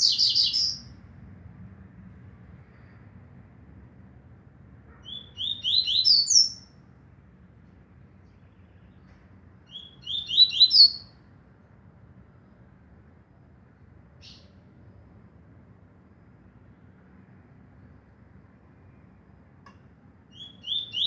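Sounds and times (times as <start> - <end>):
seedeater bird singing: 0.0 - 0.9, 5.0 - 6.7, 9.7 - 11.1, 20.3 - 21.0.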